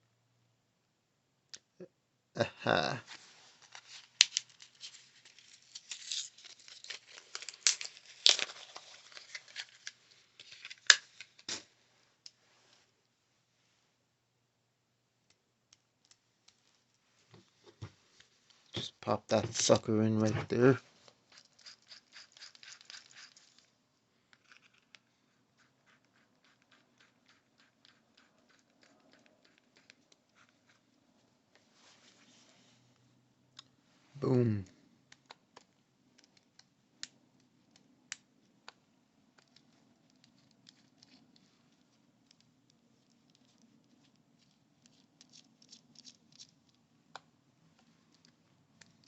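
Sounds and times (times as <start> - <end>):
packaging crinkling and tearing: 3.2 - 11.6, 21.4 - 23.7.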